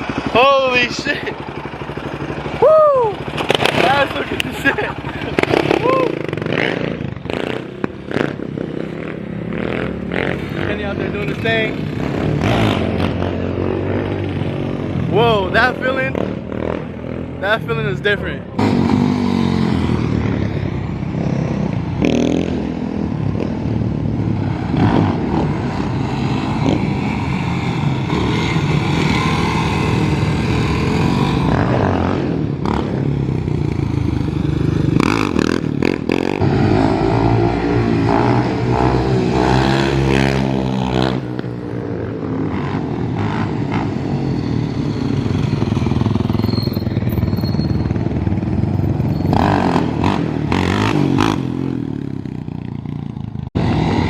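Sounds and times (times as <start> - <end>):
off-road motorcycle engines revving: 0.0 - 54.0.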